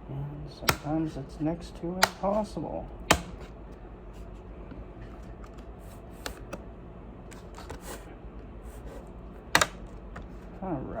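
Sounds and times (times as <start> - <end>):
sharp plastic snap: 0.6 - 1.0, 2.0 - 2.3, 3.1 - 3.4, 9.5 - 10.3.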